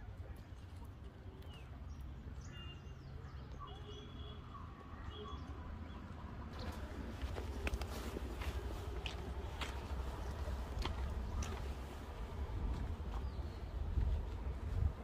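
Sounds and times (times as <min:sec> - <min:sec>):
footsteps on a path: 0:06.5 - 0:15.0
wind rumble: 0:10.3 - 0:15.0.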